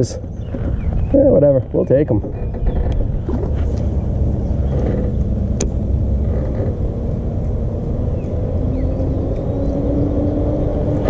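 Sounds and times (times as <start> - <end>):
sharp click: 5.6 - 5.8.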